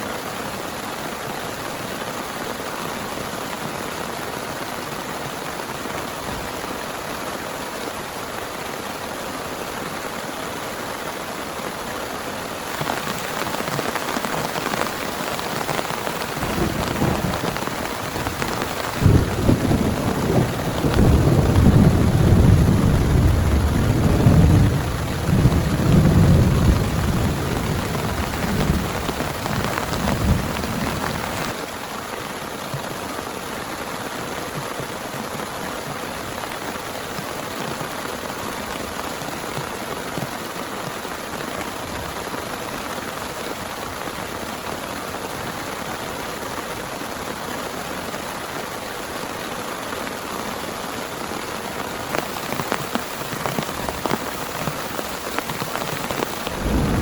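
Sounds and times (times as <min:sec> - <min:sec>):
heavy rain falling: 0:00.1 - 0:57.0
thunder rumbling: 0:12.7 - 0:31.6, 0:52.2 - 0:57.0.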